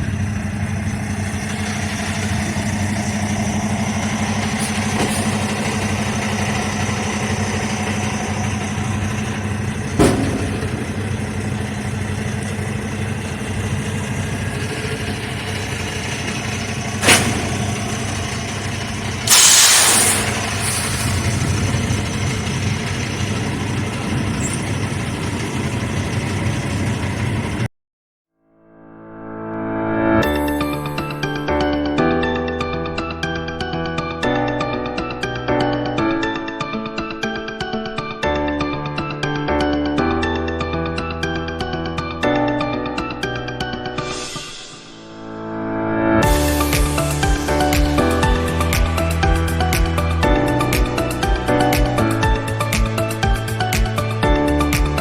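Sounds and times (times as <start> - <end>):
diesel truck engine running: 0.0 - 27.7, 46.2 - 55.0
loud air hiss: 4.1 - 9.9, 15.4 - 23.4, 44.0 - 45.2
sharp knocks: 4.4 - 13.6.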